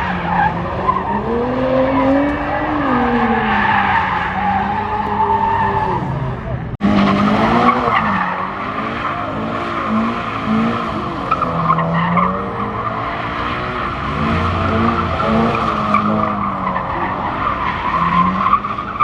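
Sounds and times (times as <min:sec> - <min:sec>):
car engine revving high: 0:05.9 - 0:19.0.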